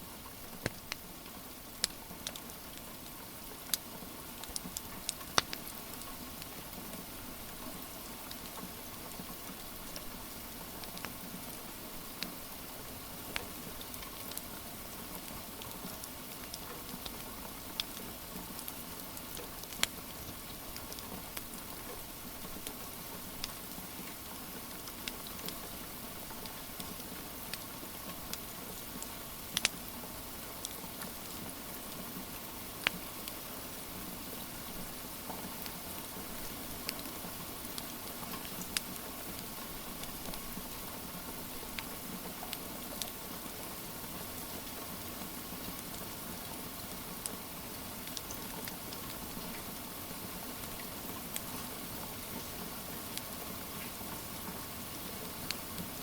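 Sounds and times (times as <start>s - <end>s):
steady rain patter: 0.0s - 56.0s
wood fire crackling and popping: 1.8s - 3.8s, 4.4s - 6.5s, 15.2s - 21.6s, 24.8s - 25.6s, 29.4s - 29.9s, 30.6s - 31.4s, 34.9s - 40.7s, 41.7s - 43.2s, 48.0s - 49.6s.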